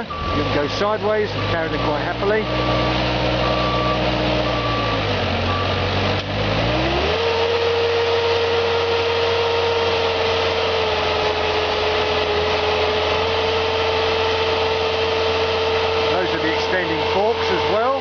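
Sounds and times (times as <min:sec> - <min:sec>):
reversing beep: 0:00.0 - 0:05.8
forklift engine running: 0:00.0 - 0:18.0.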